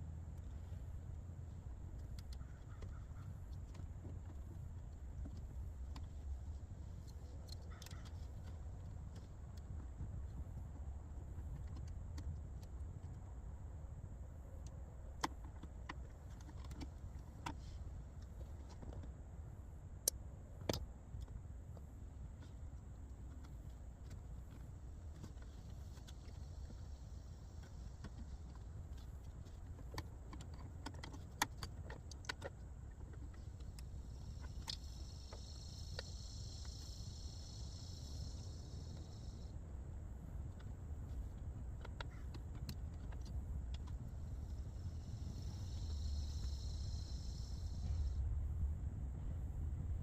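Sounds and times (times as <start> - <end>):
steady low rumble: 16.9 - 50.0
steady high hiss: 33.8 - 39.6, 44.1 - 48.7.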